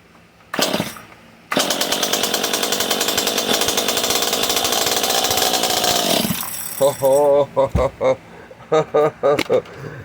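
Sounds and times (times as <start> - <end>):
chainsaw engine starting and running: 0.5 - 6.9.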